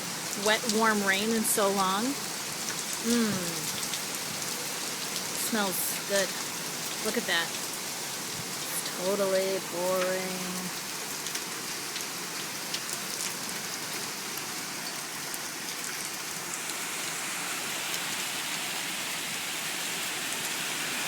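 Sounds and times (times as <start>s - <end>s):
raindrops ticking close by: 0.0s - 16.8s
heavy rain hissing: 0.0s - 21.0s.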